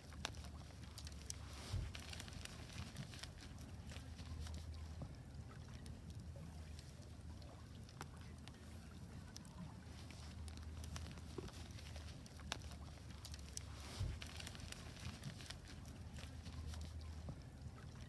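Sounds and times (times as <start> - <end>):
wood fire crackling and popping: 0.0 - 4.9, 9.3 - 17.6.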